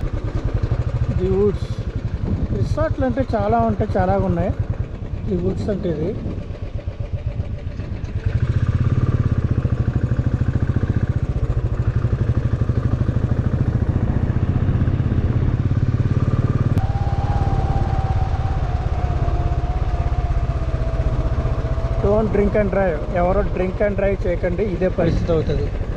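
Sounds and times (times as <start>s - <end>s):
motorcycle engine pulsing: 0.0s - 25.9s
steady tone: 16.8s - 23.6s.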